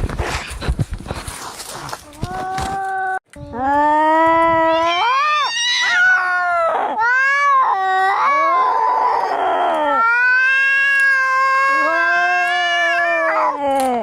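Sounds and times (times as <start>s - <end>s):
cats yowling: 4.5s - 13.6s.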